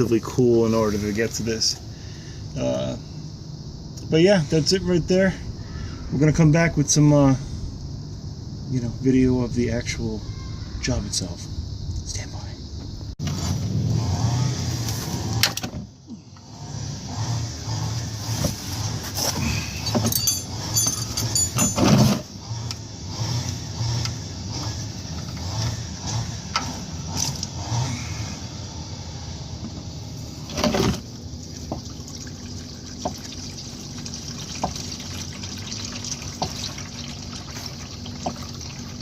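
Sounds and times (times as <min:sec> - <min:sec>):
oil pouring into pan: 0:31.5 - 0:39.0.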